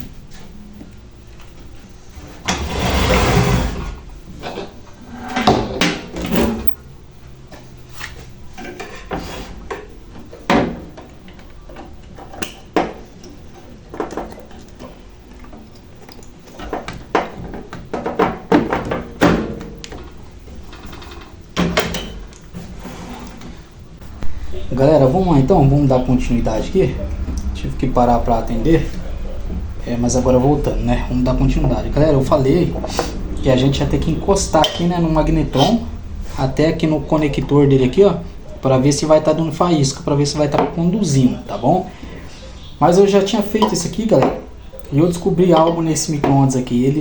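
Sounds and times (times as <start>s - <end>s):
tools knocking and rattling on workbench: 16.6s - 20.1s.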